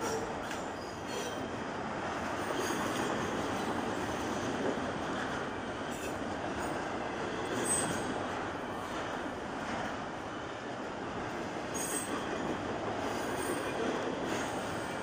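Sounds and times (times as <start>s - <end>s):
high wheel squeal: 0.0s - 1.5s, 7.4s - 8.2s
freight train wheels rumbling: 0.0s - 15.0s.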